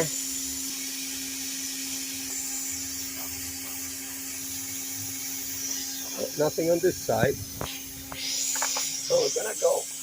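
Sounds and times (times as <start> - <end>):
air hissing from leak: 0.0 - 10.0
vacuum cleaner running: 0.0 - 10.0.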